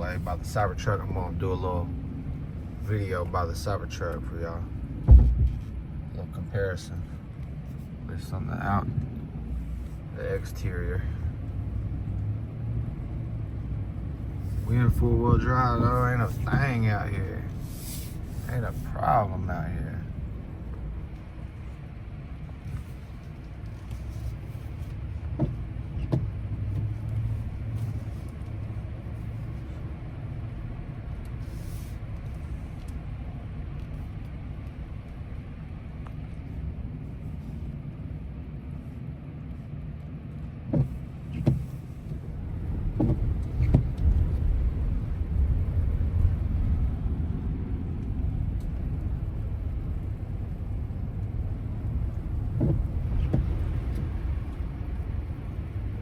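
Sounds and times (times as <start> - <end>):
engine and road rumble: 0.0 - 56.0
short knocks: 5.0 - 5.7.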